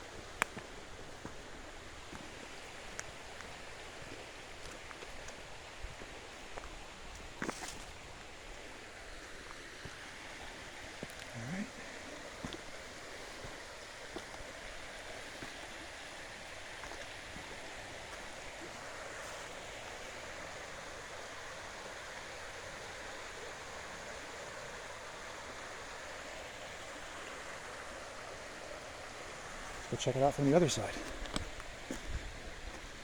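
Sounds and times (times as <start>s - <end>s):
stream running over stones: 0.0s - 33.0s.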